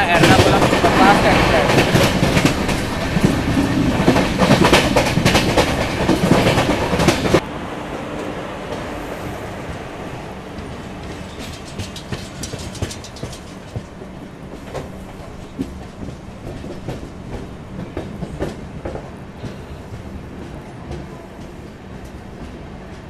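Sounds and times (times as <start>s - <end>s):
wheel clacks over rail joints: 0.0s - 7.4s, 10.5s - 19.7s
train rumble: 0.0s - 23.0s.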